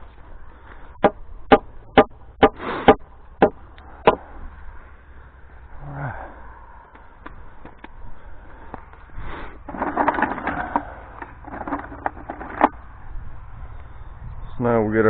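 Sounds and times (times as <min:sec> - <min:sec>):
wood scraping and rustling: 0:07.6 - 0:12.9.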